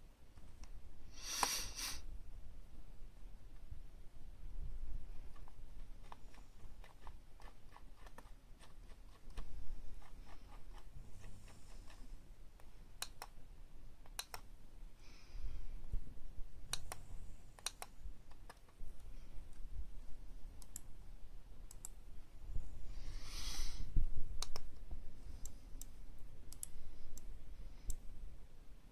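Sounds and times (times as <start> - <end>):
faint low rumble: 2.0 - 28.9
sharp clicks and taps: 12.6 - 13.4, 14.0 - 14.5, 17.6 - 19.7, 24.4 - 24.8.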